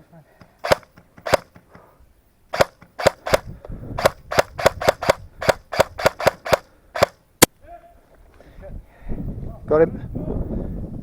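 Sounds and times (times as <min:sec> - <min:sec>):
airsoft guns firing: 0:00.6 - 0:01.6, 0:02.5 - 0:07.2.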